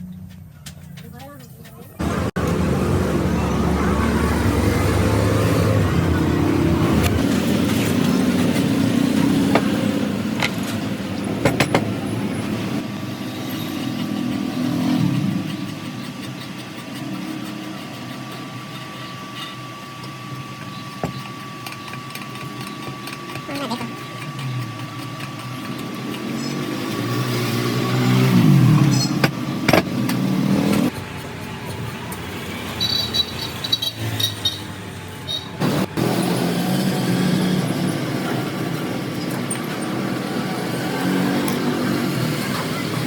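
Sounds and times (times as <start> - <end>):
motor humming: 13.9 - 28.8.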